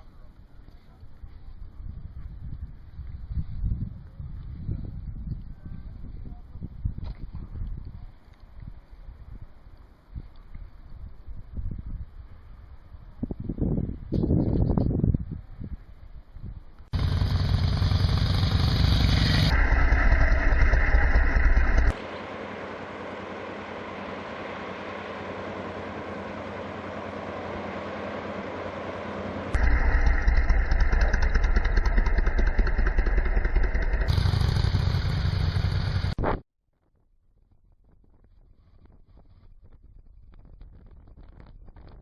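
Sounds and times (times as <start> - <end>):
wind noise: 0.9 - 16.9, 37.3 - 42.0
motorcycle engine running: 16.9 - 36.2.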